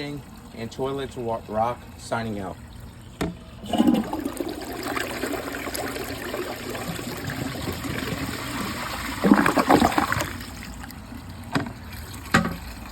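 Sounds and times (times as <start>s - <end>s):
toilet refilling with water: 0.4s - 12.9s
water splashing: 3.1s - 12.9s.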